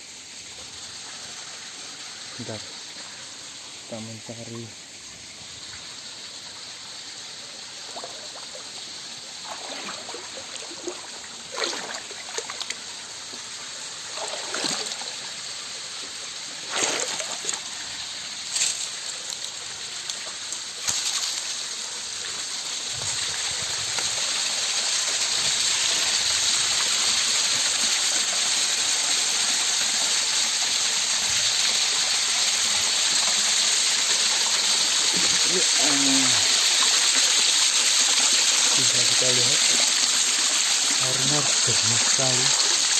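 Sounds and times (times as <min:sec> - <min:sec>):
stream flowing over rocks: 0:05.1 - 0:42.9
water splashes: 0:07.8 - 0:15.4, 0:16.5 - 0:21.4, 0:34.4 - 0:42.9.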